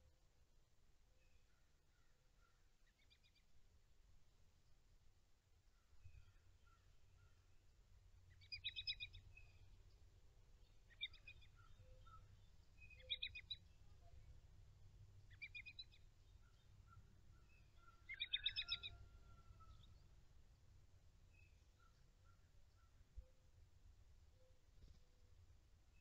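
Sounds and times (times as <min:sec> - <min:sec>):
faint low background rumble: 0:00.0 - 0:18.2
songbird trilling: 0:08.4 - 0:09.2, 0:10.9 - 0:13.6, 0:15.3 - 0:16.0, 0:17.4 - 0:19.9.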